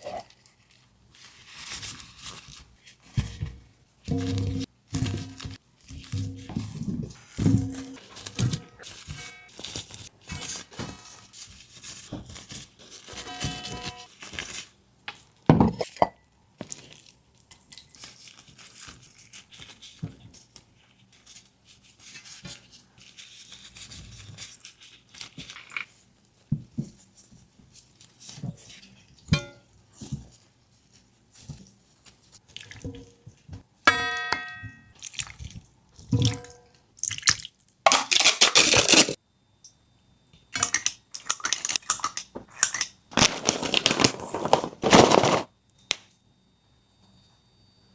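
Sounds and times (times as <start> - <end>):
ringing strikes on a bowl: 33.9 - 34.9.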